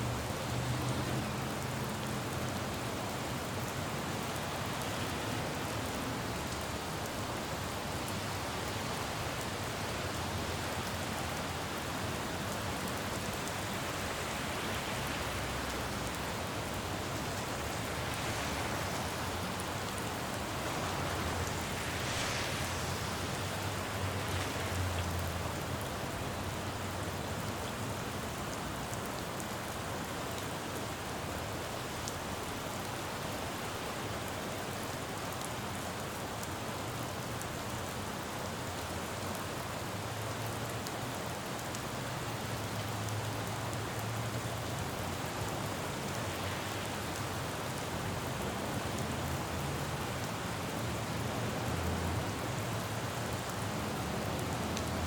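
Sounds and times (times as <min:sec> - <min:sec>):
rain falling on a road: 0:00.0 - 0:55.0
passing traffic rumble: 0:13.0 - 0:27.0, 0:48.6 - 0:55.0.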